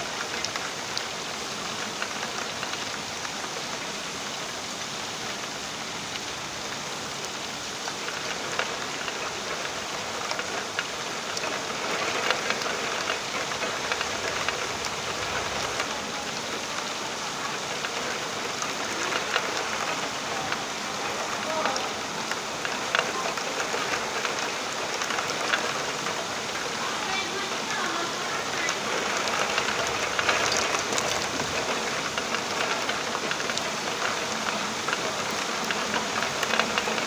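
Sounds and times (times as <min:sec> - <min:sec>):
rain falling: 0:00.0 - 0:37.0.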